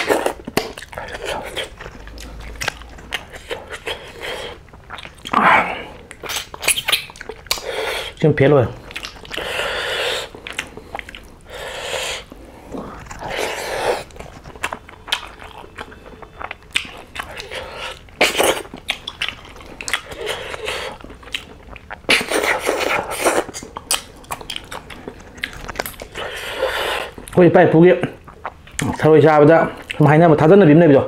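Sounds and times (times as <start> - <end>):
wet mouth noise and clicks: 0.0 - 4.0, 6.1 - 7.8
chewing and biting: 0.0 - 5.4, 6.0 - 8.2, 8.8 - 27.4.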